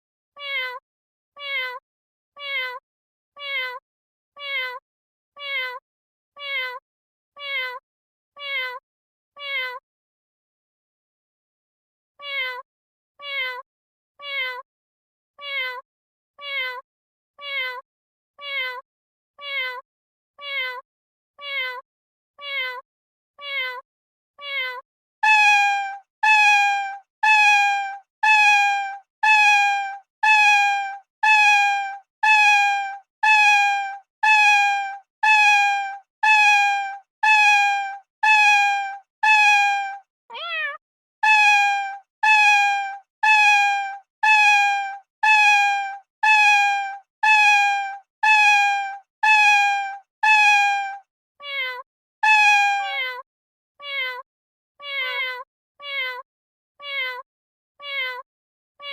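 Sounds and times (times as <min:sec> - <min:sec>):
cat meowing: 0:00.4 - 0:00.8, 0:01.4 - 0:01.8, 0:02.4 - 0:02.8, 0:03.4 - 0:03.8, 0:04.4 - 0:04.8, 0:05.4 - 0:05.8, 0:06.4 - 0:06.8, 0:07.4 - 0:07.8, 0:08.4 - 0:08.8, 0:09.4 - 0:09.8, 0:12.2 - 0:12.6, 0:13.2 - 0:13.6, 0:14.2 - 0:14.6, 0:15.4 - 0:15.8, 0:16.4 - 0:16.8, 0:17.4 - 0:17.8, 0:18.4 - 0:18.8, 0:19.4 - 0:19.8, 0:20.4 - 0:20.8, 0:21.4 - 0:21.8, 0:22.4 - 0:22.8, 0:23.4 - 0:23.8, 0:24.4 - 0:43.6, 0:44.2 - 0:44.6, 0:45.2 - 0:45.6, 0:46.2 - 0:46.6, 0:48.2 - 0:48.6, 0:49.2 - 0:49.6, 0:50.2 - 0:50.8, 0:51.4 - 0:53.2, 0:53.8 - 0:54.2, 0:54.8 - 0:56.2, 0:56.8 - 0:57.2, 0:57.8 - 0:58.2.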